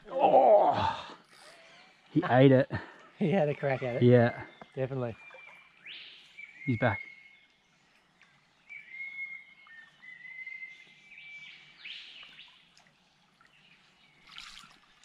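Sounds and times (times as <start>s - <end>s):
birds calling: 0.0s - 14.6s
shallow stream rushing: 13.9s - 15.0s.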